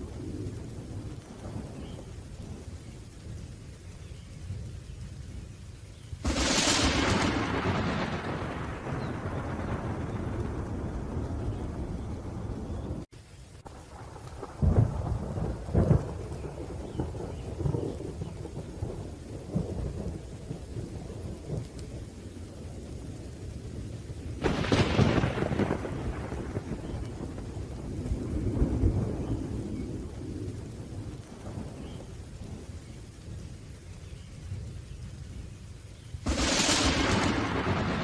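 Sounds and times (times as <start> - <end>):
rolling thunder: 0.0 - 5.4, 6.2 - 35.6, 36.2 - 38.0
steady rain: 0.0 - 38.0
sharp thunderclap: 6.2 - 13.1, 13.9 - 21.8, 24.4 - 32.7, 36.2 - 38.0.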